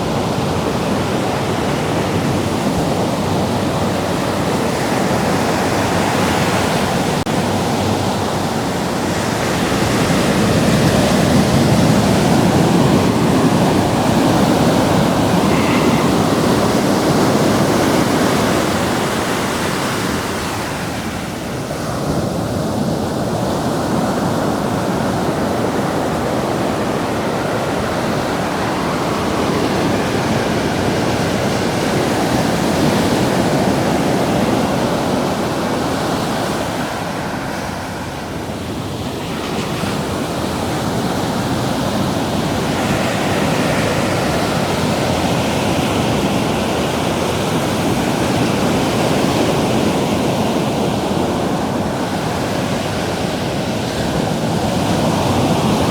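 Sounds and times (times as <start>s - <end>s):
ocean surf breaking: 0.0s - 55.9s.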